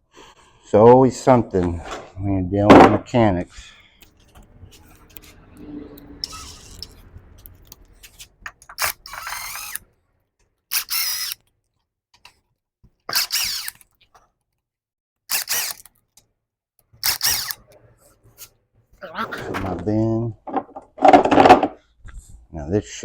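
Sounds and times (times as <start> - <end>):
cordless power tool bursts: 8.7 - 9.8, 10.7 - 11.4, 13.1 - 13.8, 15.3 - 15.9, 17.0 - 17.6.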